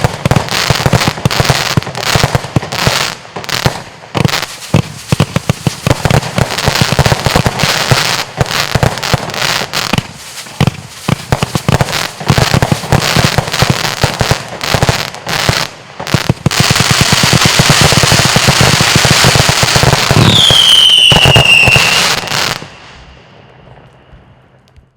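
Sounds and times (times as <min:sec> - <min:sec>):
firework bangs and crackles: 0:00.0 - 0:24.9
falling firework whistle: 0:20.0 - 0:24.4.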